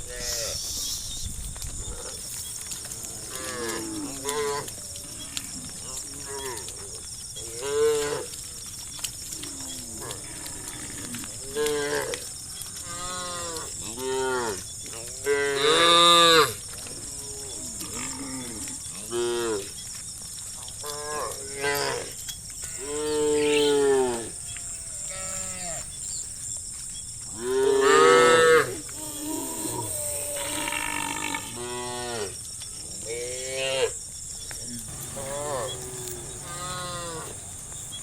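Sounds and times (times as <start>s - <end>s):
cattle mooing: 34.9s - 38.0s.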